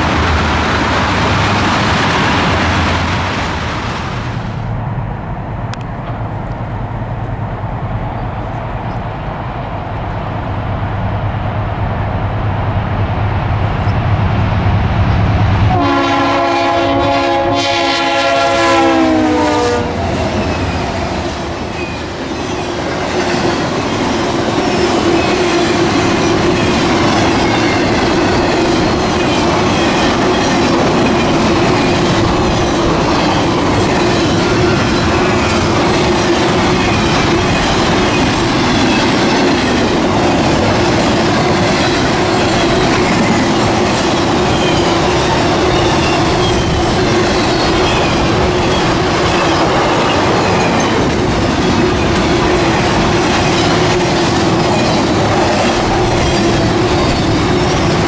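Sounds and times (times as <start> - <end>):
diesel locomotives rumbling: 0.0 - 58.0
train horn: 15.7 - 20.5.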